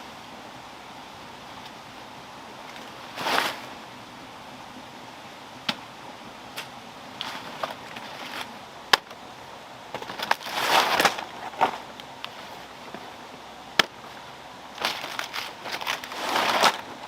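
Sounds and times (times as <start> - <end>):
faint steady hiss: 0.0 - 17.0
short scraping or rustling bursts: 2.8 - 3.8, 10.0 - 12.7, 14.8 - 17.0.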